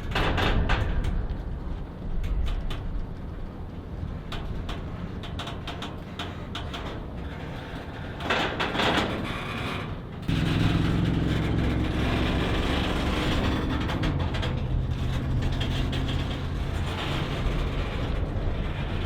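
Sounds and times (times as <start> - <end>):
diesel locomotive engine droning: 9.8 - 19.0
rough rushing noise: 10.3 - 19.0.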